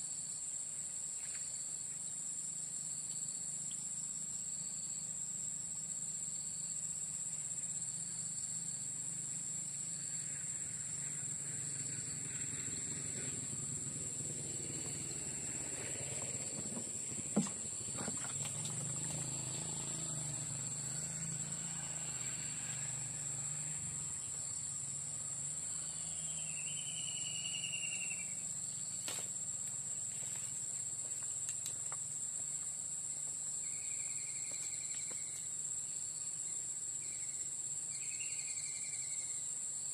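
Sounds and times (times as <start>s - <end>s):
insects droning: 0.0s - 39.9s
whistled bird call: 26.0s - 28.4s.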